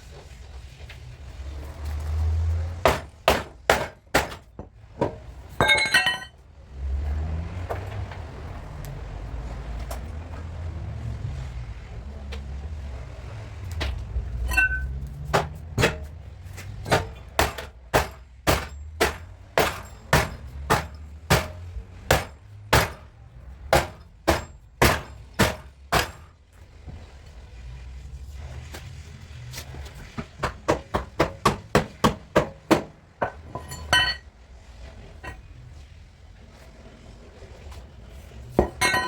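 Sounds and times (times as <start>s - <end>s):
hammer striking car body panel: 2.8s - 4.6s, 16.9s - 23.0s, 23.7s - 26.2s, 30.4s - 32.9s
ringing metal clink: 5.6s - 6.3s, 14.4s - 15.0s, 33.5s - 34.3s, 38.8s - 39.0s.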